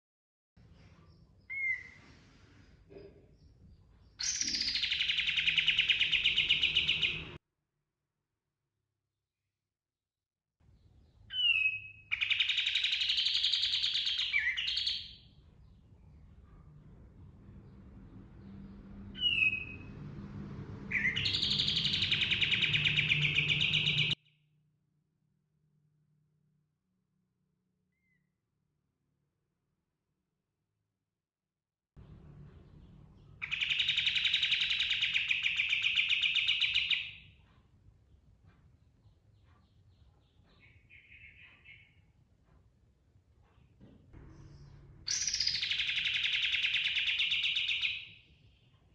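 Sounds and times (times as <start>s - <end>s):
songbird calls and rolling trill: 3.4s - 7.4s, 10.8s - 16.4s, 18.4s - 20.0s, 20.9s - 24.4s, 32.5s - 37.4s, 38.8s - 42.2s, 44.4s - 48.8s.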